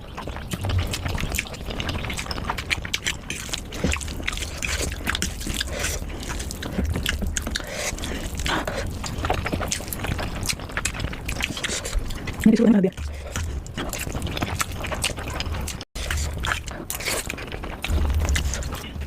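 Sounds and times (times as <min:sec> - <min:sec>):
person chewing: 0:00.2 - 0:19.0
low rumble: 0:17.5 - 0:19.0.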